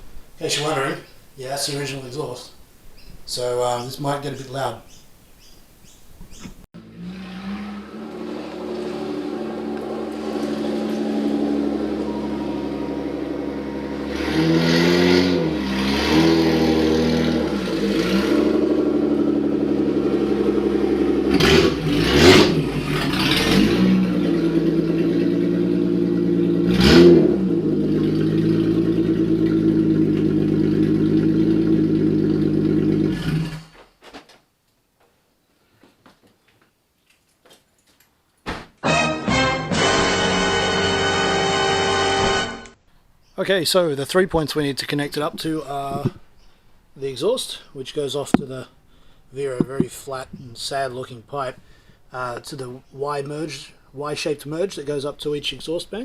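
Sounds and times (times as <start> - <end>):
car engine revving: 6.8 - 33.7, 39.0 - 42.8.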